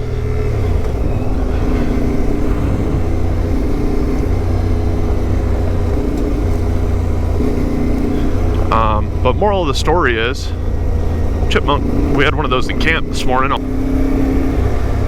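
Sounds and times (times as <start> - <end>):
motorcycle engine running: 0.0 - 15.0
rushing wind: 0.0 - 15.0.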